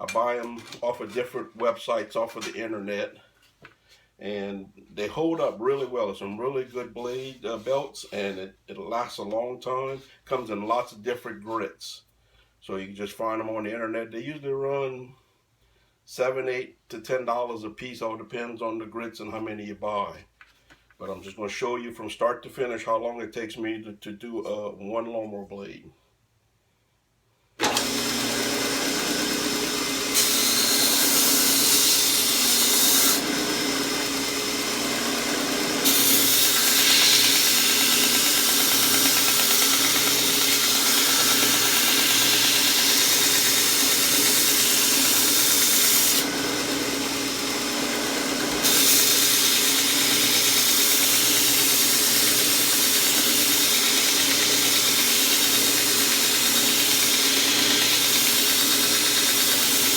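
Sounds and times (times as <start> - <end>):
belt grinder motor running: 27.6 - 59.9.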